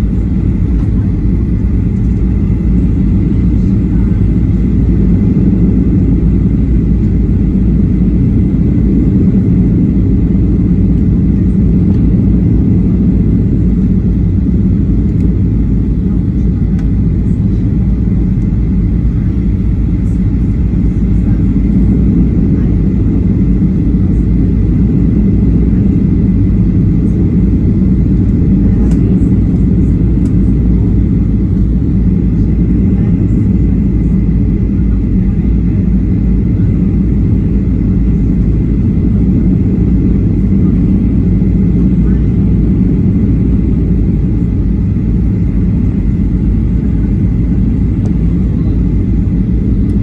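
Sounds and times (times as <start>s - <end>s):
airplane cabin engine rumble: 0.0s - 50.0s.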